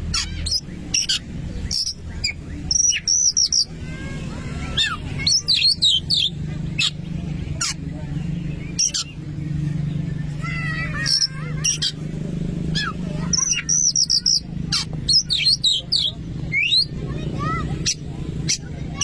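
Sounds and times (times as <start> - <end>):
bird singing whistled notes: 0.4 - 3.7, 12.8 - 14.5, 15.1 - 17.0.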